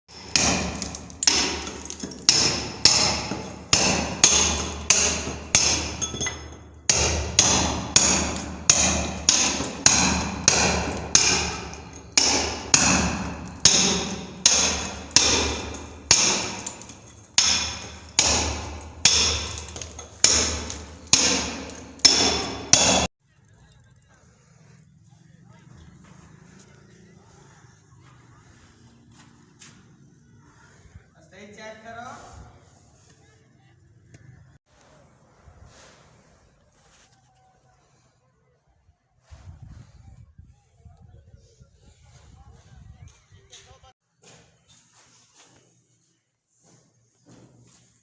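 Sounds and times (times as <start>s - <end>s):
hammer striking with ringing: 0.1s - 23.1s.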